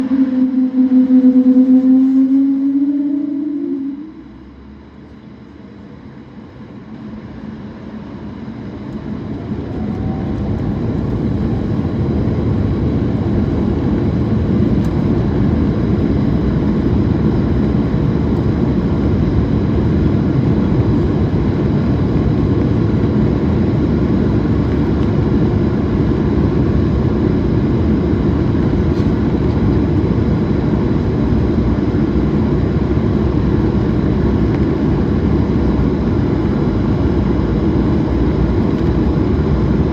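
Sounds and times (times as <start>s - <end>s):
jet engines spooling up: 0.0s - 5.6s.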